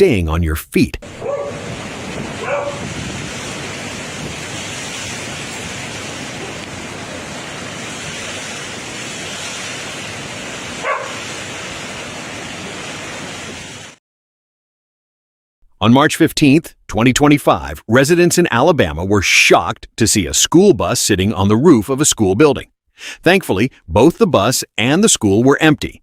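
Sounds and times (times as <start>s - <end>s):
strong wind on microphone: 1.0s - 14.0s.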